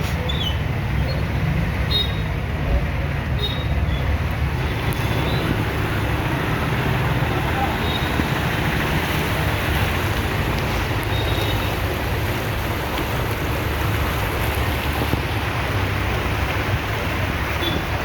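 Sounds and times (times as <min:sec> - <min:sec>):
rushing noise with low rumble: 0:00.0 - 0:18.0.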